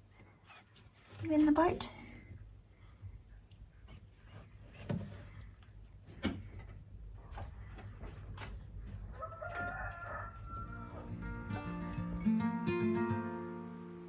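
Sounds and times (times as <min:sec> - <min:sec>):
acoustic guitar music: 0:10.8 - 0:14.0.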